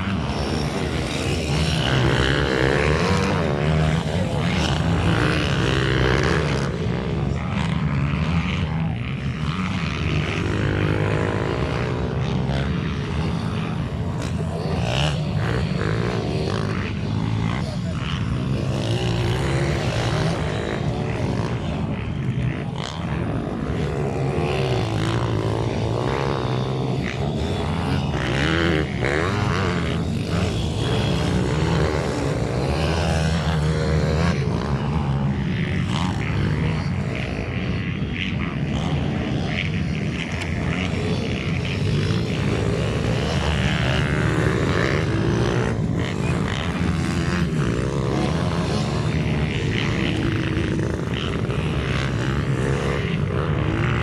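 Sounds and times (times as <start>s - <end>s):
minibike engines racing: 0.0s - 54.0s.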